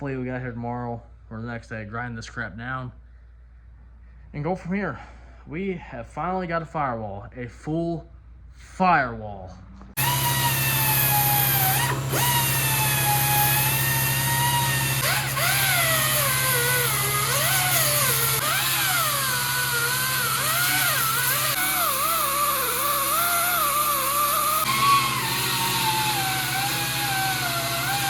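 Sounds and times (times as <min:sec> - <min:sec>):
grinder grinding metal: 0:10.0 - 0:28.0.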